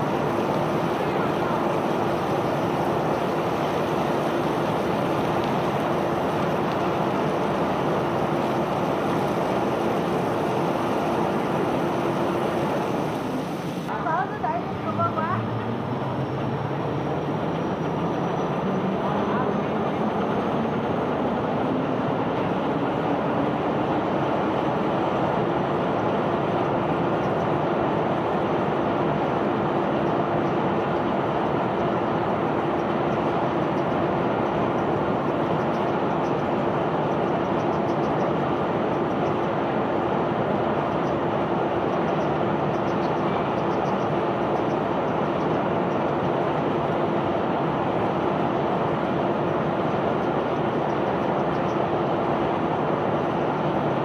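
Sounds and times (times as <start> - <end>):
machinery running: 0.0 - 27.1
continuous rushing noise: 0.0 - 54.0.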